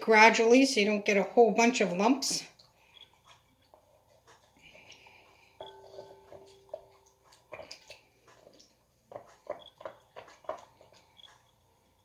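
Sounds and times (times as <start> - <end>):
utensils knocking in a mixing bowl: 5.6 - 11.4.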